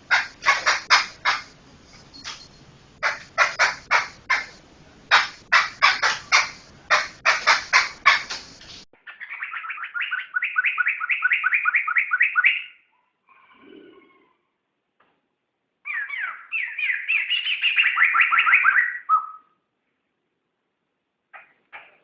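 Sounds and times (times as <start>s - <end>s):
bird singing whistled notes: 9.2s - 12.8s, 15.9s - 19.5s.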